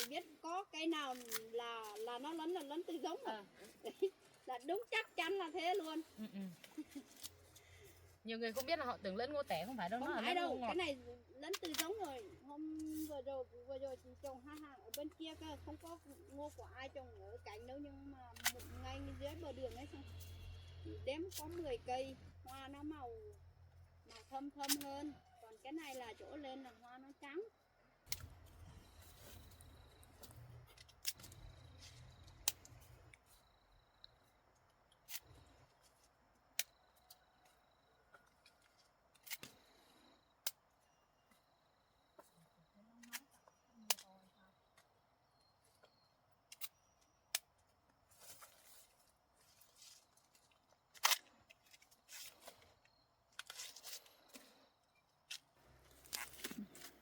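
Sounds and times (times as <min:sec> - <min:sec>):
dry husks rustling and tearing: 0:00.0 - 0:08.9, 0:55.3 - 0:57.0
handling clicks and snaps: 0:11.5 - 0:12.2, 0:18.4 - 0:18.8, 0:28.0 - 0:28.4, 0:30.2 - 0:33.3, 0:34.0 - 0:39.7, 0:43.0 - 0:44.2, 0:45.8 - 0:48.6, 0:49.8 - 0:54.5, 0:55.2 - 0:57.0.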